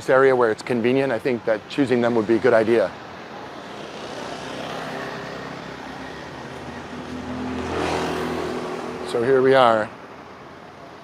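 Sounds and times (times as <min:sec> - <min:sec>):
road traffic hum: 0:00.0 - 0:11.0
vehicle engine passing by: 0:03.6 - 0:09.4.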